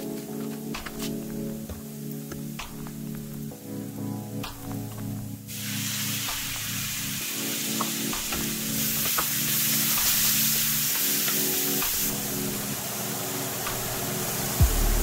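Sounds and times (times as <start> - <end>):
tomatoes sizzling in a frying pan: 5.5 - 12.6.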